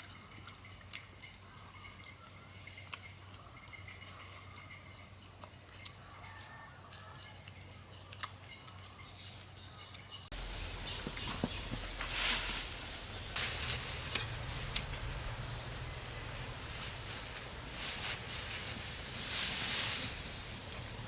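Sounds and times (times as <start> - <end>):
insects trilling: 0.0 - 21.0
hiss: 10.4 - 21.0.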